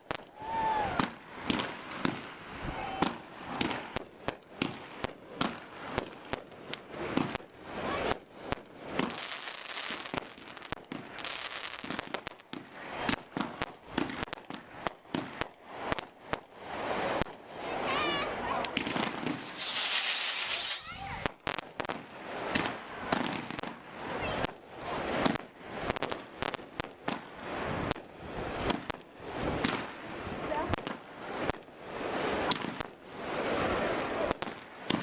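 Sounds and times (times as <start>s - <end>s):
firework crackling hiss: 0.0s - 35.0s
firework shell bursts: 18.8s - 23.8s.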